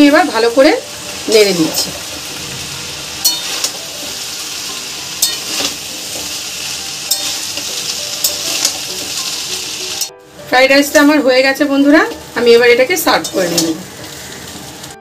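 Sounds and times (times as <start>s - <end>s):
rice sizzling in a pan: 0.0s - 15.0s
metal spatula scraping a pan: 2.5s - 6.4s, 7.0s - 9.4s.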